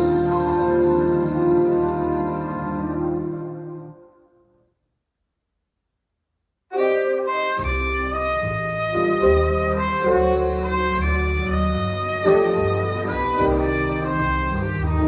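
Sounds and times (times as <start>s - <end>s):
bass line: 0.0s - 4.0s, 7.4s - 15.0s
saxophone and brass notes: 0.0s - 4.3s, 6.7s - 15.0s.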